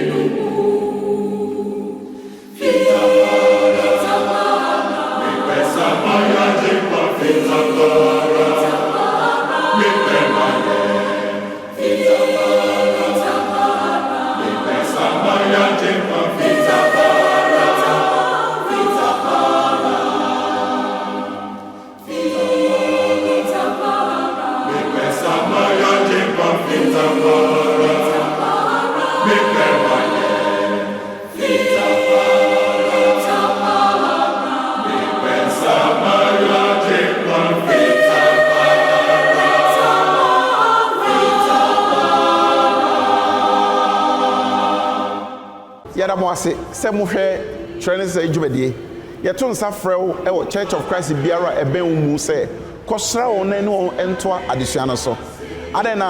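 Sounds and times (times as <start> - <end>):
choir singing a cappella: 0.0 - 56.0.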